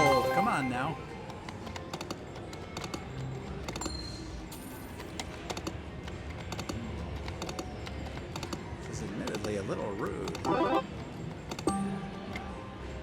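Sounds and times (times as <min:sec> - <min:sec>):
short high electronic tone: 0:00.0 - 0:01.1
casino background hum: 0:00.0 - 0:03.6, 0:05.3 - 0:13.0
slot machine clicks and ticks: 0:00.0 - 0:03.8, 0:05.0 - 0:12.5.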